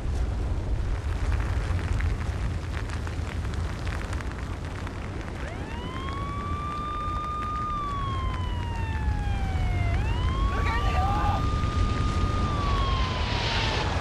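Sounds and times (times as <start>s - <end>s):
crackling: 0.0s - 14.0s
deep rumble of eruption: 0.0s - 14.0s
siren winding up: 5.4s - 14.0s.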